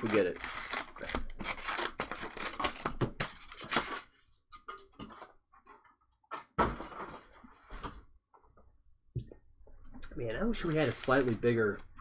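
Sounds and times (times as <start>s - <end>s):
card pack wrapper tearing: 0.0s - 4.0s, 10.6s - 11.4s.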